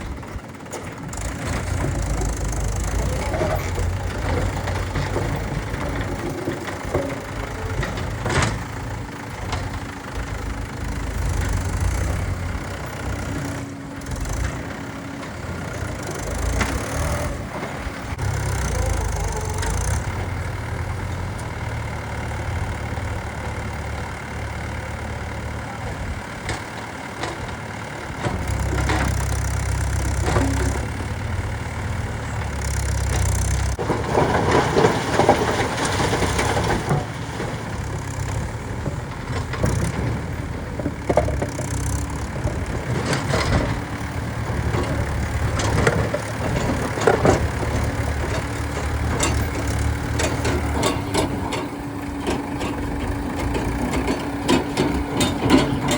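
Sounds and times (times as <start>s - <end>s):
diesel engine revving: 0.0s - 55.9s
knocks and clatters: 0.6s - 18.7s, 32.8s - 55.9s.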